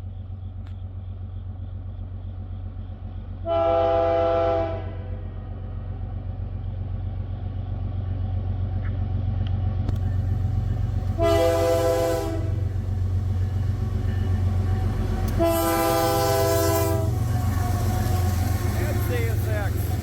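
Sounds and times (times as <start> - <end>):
locomotive engine rumble: 0.0 - 20.0
multi-note air horn blasts: 3.5 - 5.1, 11.1 - 12.8, 14.6 - 18.8.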